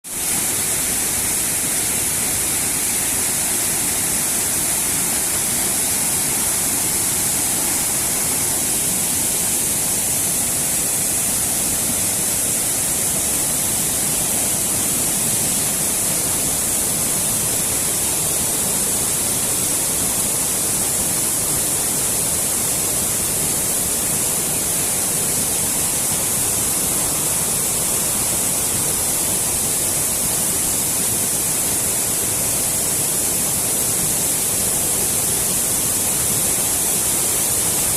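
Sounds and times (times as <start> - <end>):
waterfall rushing: 0.1 - 37.9.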